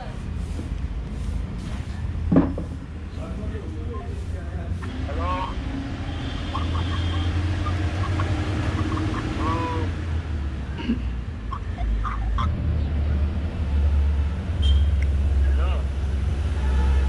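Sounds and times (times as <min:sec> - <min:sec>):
traffic: 0:00.0 - 0:17.0
vehicle engine rumble: 0:00.0 - 0:17.0
faint voices: 0:03.0 - 0:10.1, 0:10.7 - 0:13.1.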